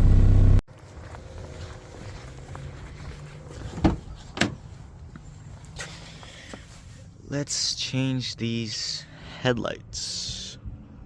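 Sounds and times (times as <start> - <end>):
low hum: 0.0 - 5.3
car engine drone: 0.0 - 11.0.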